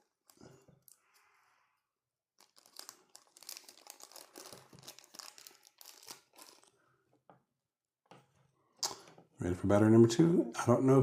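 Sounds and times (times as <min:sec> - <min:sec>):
plastic packaging crinkling: 0:02.4 - 0:06.8.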